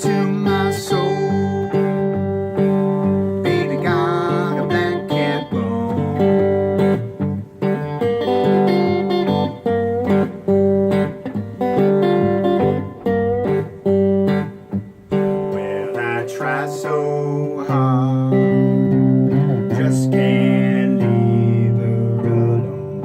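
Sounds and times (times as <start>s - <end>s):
blues guitar riff: 0.0s - 23.0s.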